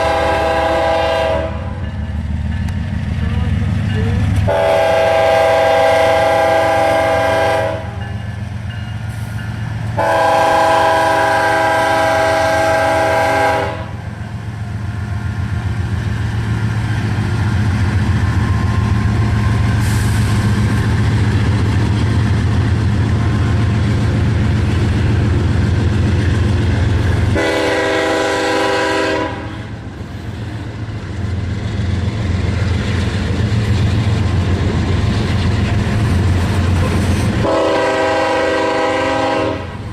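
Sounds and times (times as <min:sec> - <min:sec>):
train air horn blasts: 0:00.0 - 0:01.8, 0:04.5 - 0:08.0, 0:10.0 - 0:14.0, 0:27.3 - 0:29.8, 0:37.4 - 0:39.9
diesel locomotives rumbling: 0:00.0 - 0:39.9.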